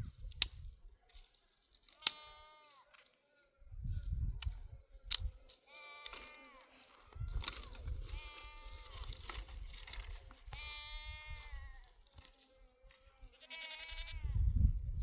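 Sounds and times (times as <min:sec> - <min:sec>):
goats bleating: 0:02.0 - 0:03.0, 0:05.6 - 0:09.3, 0:10.4 - 0:12.0, 0:12.6 - 0:14.4.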